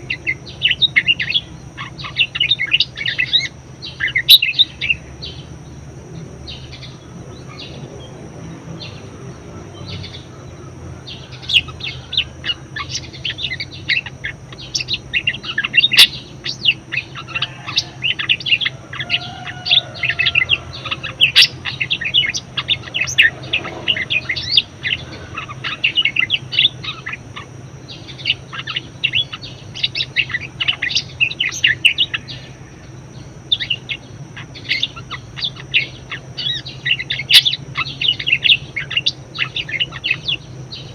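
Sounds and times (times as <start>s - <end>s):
budgerigar chattering: 0.0s - 5.4s, 9.8s - 40.9s.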